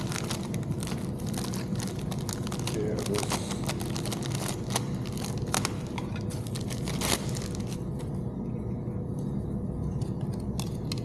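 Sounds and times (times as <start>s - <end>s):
steady low hum: 0.0s - 11.0s
sharp clicks and crinkling: 10.0s - 11.0s.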